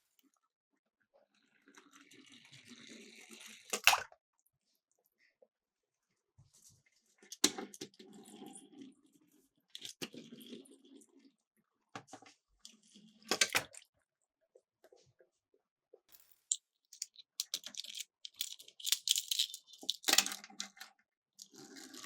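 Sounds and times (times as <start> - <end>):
toy cars rolling on plastic slope: 1.4 - 3.8, 7.2 - 11.3, 16.1 - 22.0.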